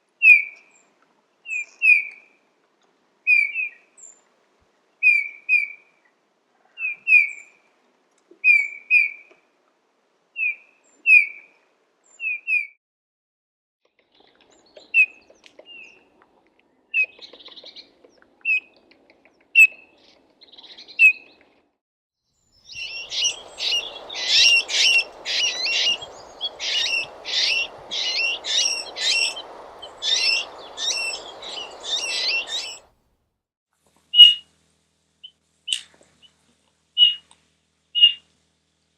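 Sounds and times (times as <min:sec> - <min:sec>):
background hiss: 0:22.5 - 0:33.0
bird whistling calls: 0:22.7 - 0:32.8, 0:34.2 - 0:34.4, 0:37.0 - 0:37.2, 0:38.0 - 0:38.2.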